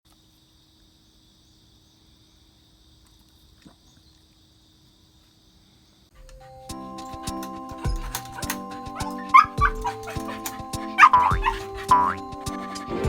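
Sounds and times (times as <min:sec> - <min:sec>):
music: 0:06.2 - 0:13.0.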